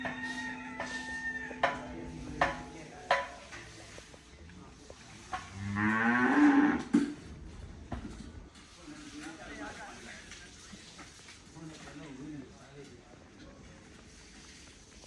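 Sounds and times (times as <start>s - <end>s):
calf mooing: 5.5s - 6.9s.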